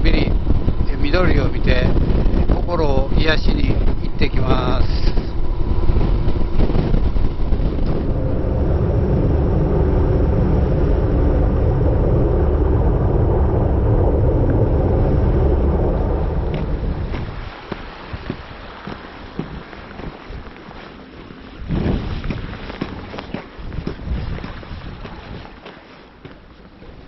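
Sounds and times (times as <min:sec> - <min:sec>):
wind and road noise: 0:00.0 - 0:27.0
motorcycle engine running: 0:03.8 - 0:12.0.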